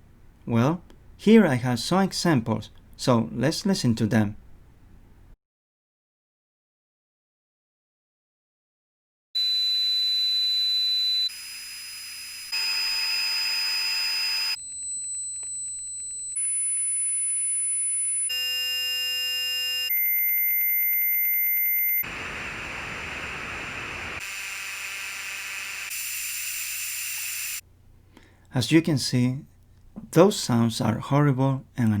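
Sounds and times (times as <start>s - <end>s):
high-pitched ringing tones: 9.4s - 22.1s
buzzing tone: 9.4s - 27.6s
hissing static: 12.4s - 14.6s, 21.8s - 27.6s.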